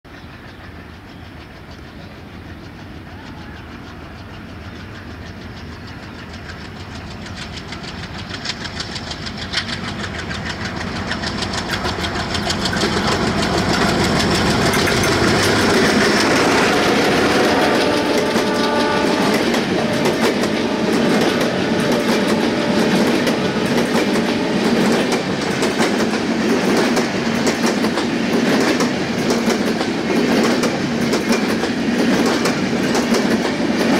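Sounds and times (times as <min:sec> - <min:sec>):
train wheels clattering on rails: 0:00.1 - 0:33.9.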